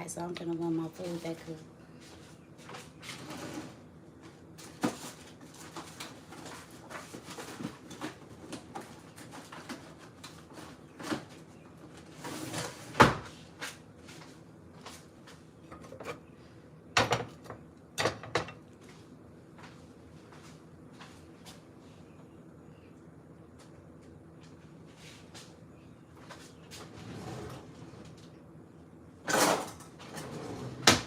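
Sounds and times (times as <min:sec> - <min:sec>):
dishes and drawers knocking: 0:17.0 - 0:18.6.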